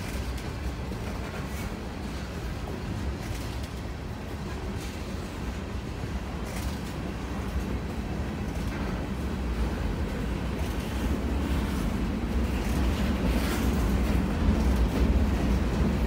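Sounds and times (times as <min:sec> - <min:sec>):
freight train rolling past: 0:00.0 - 0:16.0.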